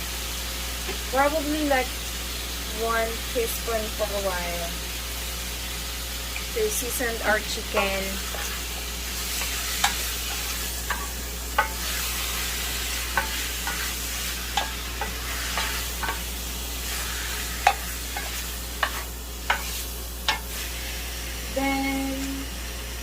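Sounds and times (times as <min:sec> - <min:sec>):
chicken sizzling in oil: 0:00.0 - 0:23.0
utensil clicking and scraping pan: 0:09.3 - 0:12.1, 0:13.1 - 0:16.3, 0:17.6 - 0:20.6.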